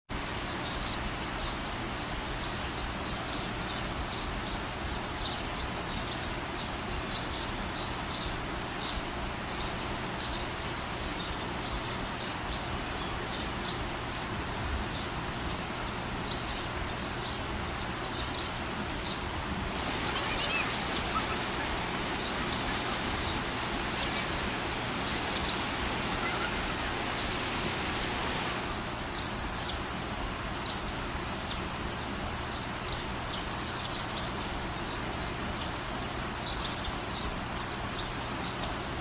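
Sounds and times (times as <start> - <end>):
outdoor background hiss: 0.1 - 39.0
small birds chirping: 0.2 - 39.0.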